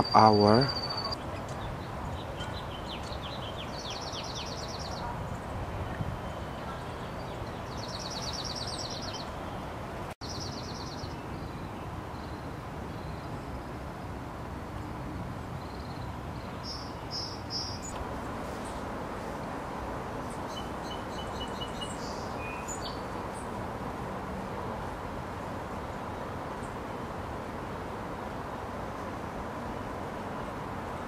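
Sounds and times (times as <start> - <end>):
small birds trilling: 0.0 - 9.6, 20.2 - 23.5
outdoor background noise: 0.0 - 31.0.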